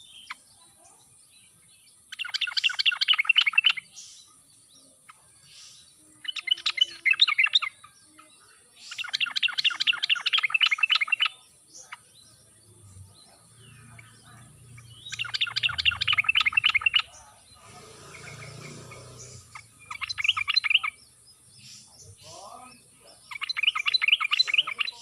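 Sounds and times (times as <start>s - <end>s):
bulbul singing rapid notes: 8.8s - 25.0s.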